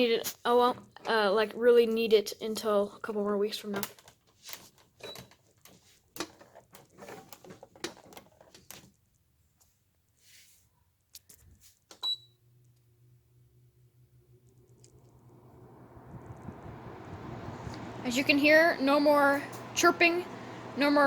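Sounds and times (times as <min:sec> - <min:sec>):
clicks and knocks of handling: 0:03.6 - 0:09.0
air conditioner fan hum: 0:13.0 - 0:21.0.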